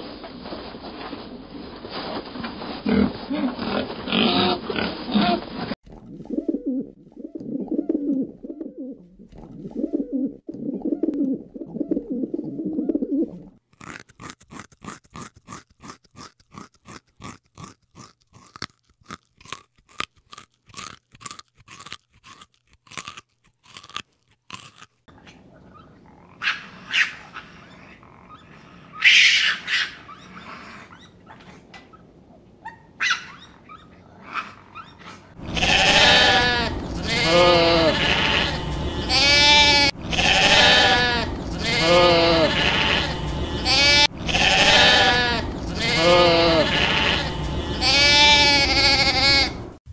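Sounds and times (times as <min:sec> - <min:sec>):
low cooing: 0:06.0 - 0:13.6
loud bleating: 0:35.4 - 0:49.8.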